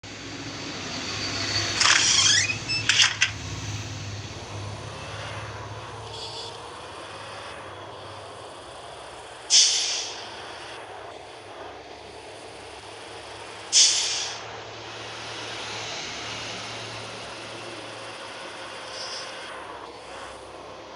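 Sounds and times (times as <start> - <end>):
truck engine running: 0.0 - 20.9
air brake hisses: 9.5 - 10.4, 13.7 - 14.4.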